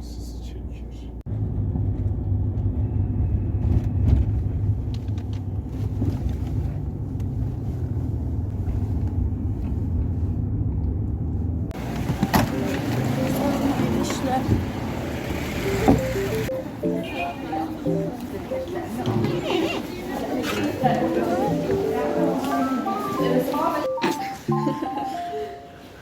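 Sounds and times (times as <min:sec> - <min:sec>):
road vehicle rumble: 0:00.0 - 0:26.0.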